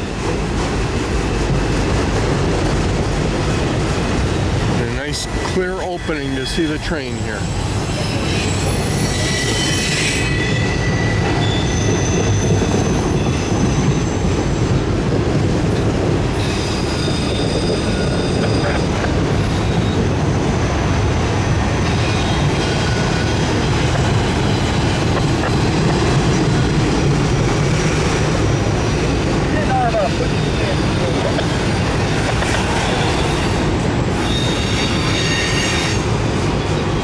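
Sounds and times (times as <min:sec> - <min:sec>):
train wheels rumbling on rail: 0:00.0 - 0:37.0
high-pitched wheel squeal: 0:02.8 - 0:14.6, 0:15.4 - 0:37.0.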